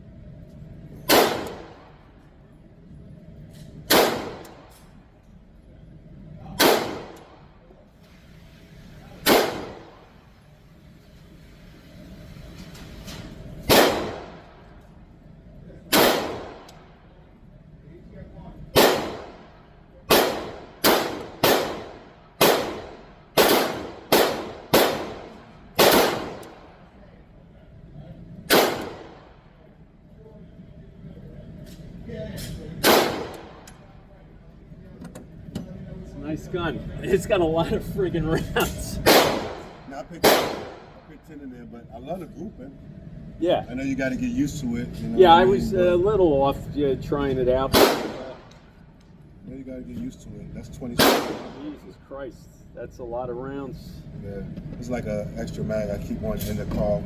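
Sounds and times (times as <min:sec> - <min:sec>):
handgun shots: 0:01.1 - 0:01.7, 0:03.9 - 0:04.8, 0:06.6 - 0:07.2, 0:09.2 - 0:09.9, 0:13.7 - 0:14.4, 0:15.9 - 0:16.8, 0:18.8 - 0:19.3, 0:20.1 - 0:26.6, 0:28.5 - 0:29.2, 0:32.8 - 0:33.6, 0:39.1 - 0:40.9, 0:47.8 - 0:48.4, 0:51.0 - 0:51.6.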